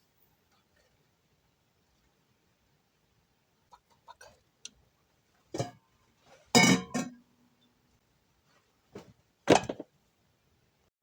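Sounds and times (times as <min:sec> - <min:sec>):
bowl clattering in sink: 0:06.6 - 0:07.2.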